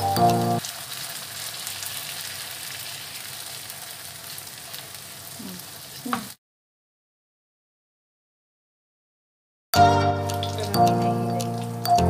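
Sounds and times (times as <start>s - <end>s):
food sizzling in hot oil: 0.0s - 6.4s, 9.8s - 12.0s.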